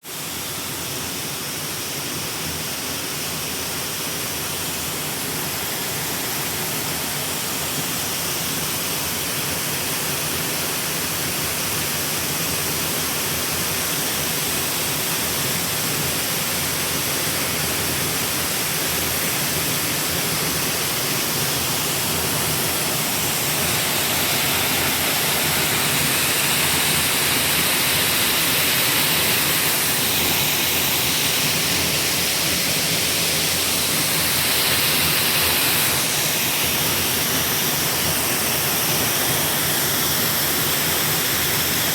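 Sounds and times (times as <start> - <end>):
waterfall rushing: 17.4 - 41.9.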